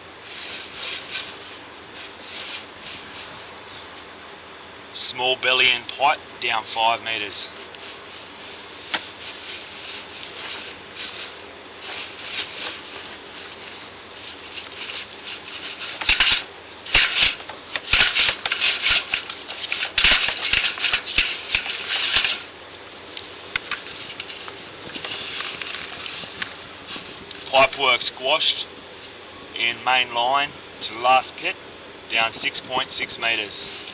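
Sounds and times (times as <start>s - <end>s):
push rod scraping and rattling in pipe: 15.8s - 22.5s.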